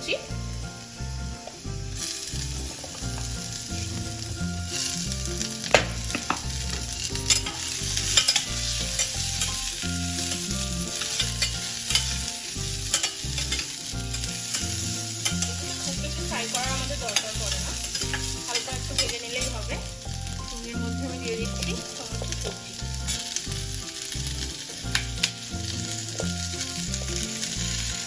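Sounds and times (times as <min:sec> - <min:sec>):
onion sizzling in oil: 0:00.0 - 0:28.0
spatula scraping metal pan: 0:01.5 - 0:20.6.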